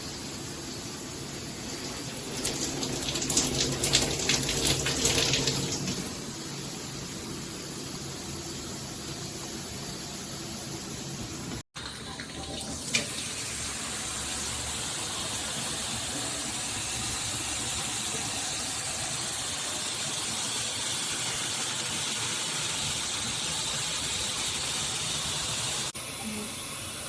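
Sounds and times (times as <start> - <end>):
shower head spraying water: 11.8 - 27.0.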